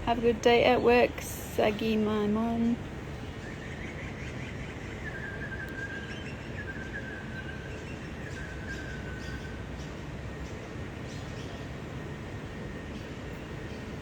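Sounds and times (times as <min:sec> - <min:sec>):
low background rumble: 0:00.0 - 0:14.0
thin whistling tone: 0:04.8 - 0:09.6.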